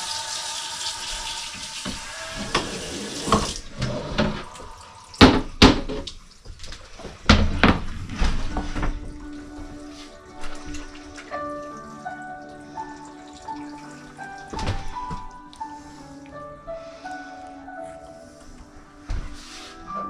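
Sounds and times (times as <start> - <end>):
tap water running into sink: 0.0 - 7.8.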